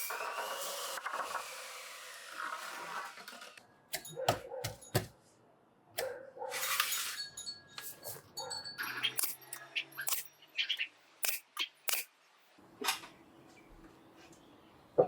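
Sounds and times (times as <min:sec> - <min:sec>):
sharp clinks and knocks: 0:03.9 - 0:05.1.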